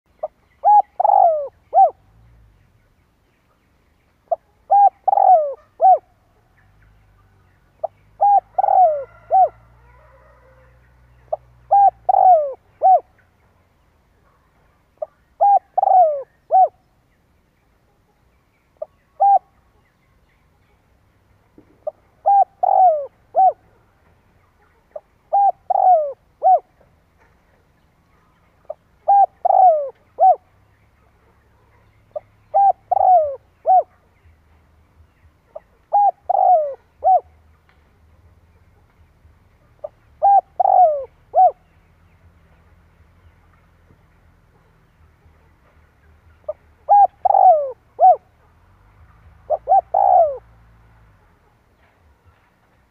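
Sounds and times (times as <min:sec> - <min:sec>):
dove cooing: 0:00.1 - 0:02.2, 0:04.3 - 0:06.4, 0:07.8 - 0:13.3, 0:15.0 - 0:17.0, 0:18.8 - 0:19.8, 0:21.7 - 0:24.0, 0:24.7 - 0:27.7, 0:28.6 - 0:34.2, 0:35.5 - 0:37.5, 0:39.6 - 0:41.7, 0:46.5 - 0:48.6, 0:49.2 - 0:51.4.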